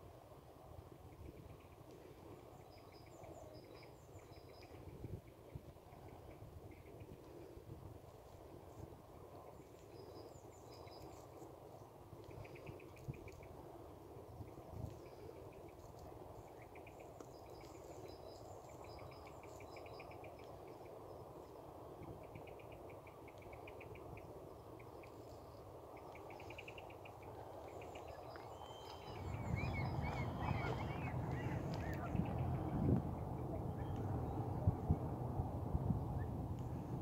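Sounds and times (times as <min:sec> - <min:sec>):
outdoor background noise: 0:00.0 - 0:37.0
small birds trilling and chirping: 0:14.3 - 0:34.7
low rumble: 0:28.6 - 0:37.0.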